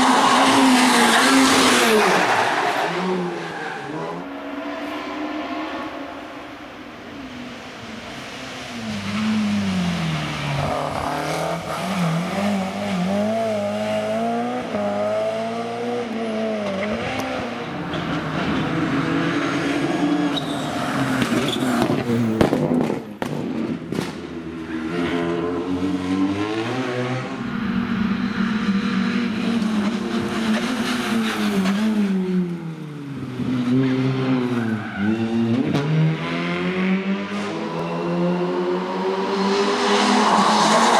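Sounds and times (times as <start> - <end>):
rally car engines revving: 0.0 - 40.9
tyre squeal: 17.0 - 22.4, 37.4 - 40.9.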